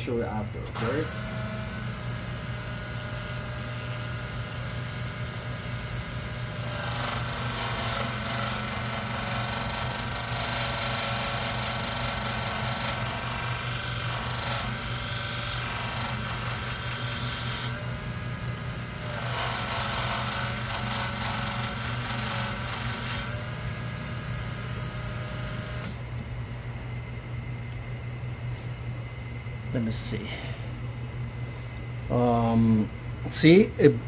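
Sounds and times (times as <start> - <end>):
electric motor hum: 0.7 - 26.2
blade grinding on sanding disc: 1.1 - 26.0.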